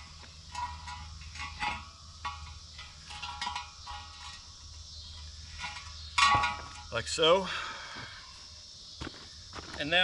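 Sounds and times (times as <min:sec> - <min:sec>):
metal clanks with ringing: 0:00.0 - 0:07.2.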